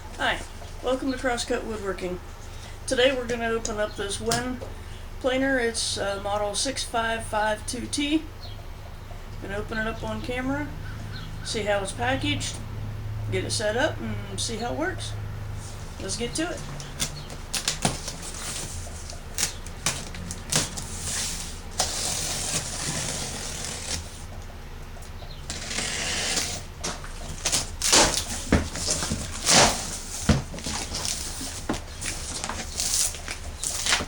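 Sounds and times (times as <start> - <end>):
low steady hum: 0.0 - 34.0
packing rustling: 16.6 - 24.3, 25.5 - 34.0
cardboard box knocks and scrapes: 25.6 - 32.8.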